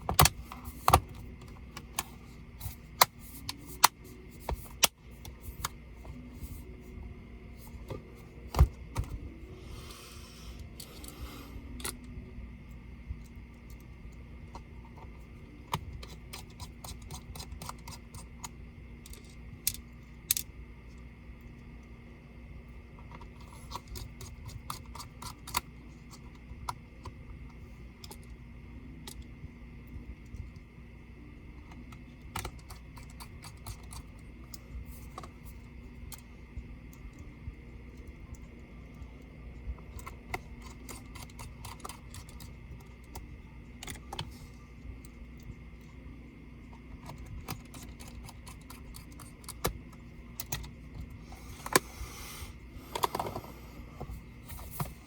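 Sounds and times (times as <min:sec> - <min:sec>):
laptop parts clicking and tapping: 0:00.0 - 0:06.6, 0:13.1 - 0:20.6, 0:23.1 - 0:29.3, 0:31.5 - 0:46.0, 0:46.6 - 0:51.9
faint steady hum: 0:00.0 - 0:55.0.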